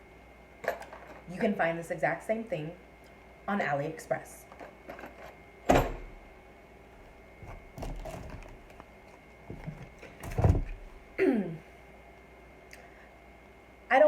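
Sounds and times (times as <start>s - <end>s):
packaging rustling: 7.4s - 10.8s.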